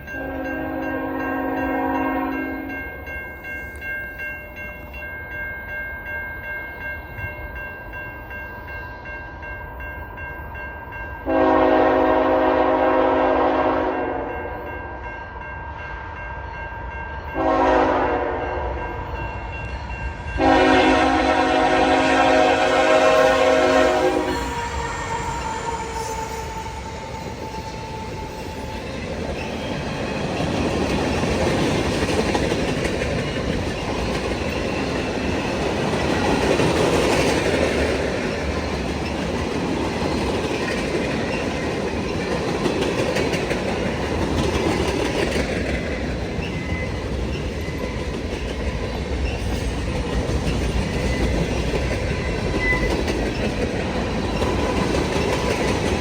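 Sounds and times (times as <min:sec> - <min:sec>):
train horn: 0:00.1 - 0:02.8, 0:11.2 - 0:14.7, 0:17.2 - 0:19.3, 0:20.4 - 0:29.5
train wheels clattering on rails: 0:19.0 - 0:56.0.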